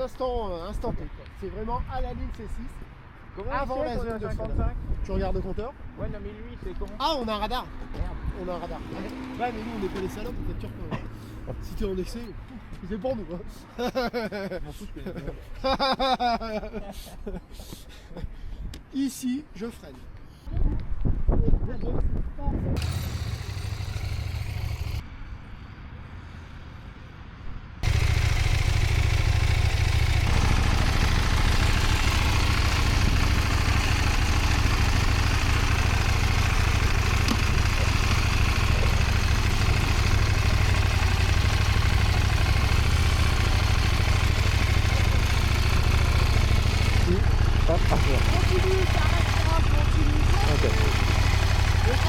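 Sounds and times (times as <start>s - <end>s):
motorcycle engine: 22.8s - 25.0s, 27.8s - 52.0s.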